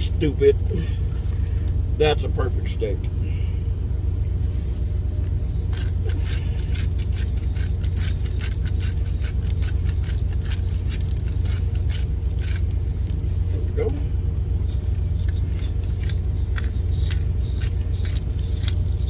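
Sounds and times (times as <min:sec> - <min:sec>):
truck engine idling: 0:00.0 - 0:19.0
clicks and scrapes of food handling: 0:05.6 - 0:13.3, 0:14.7 - 0:19.0.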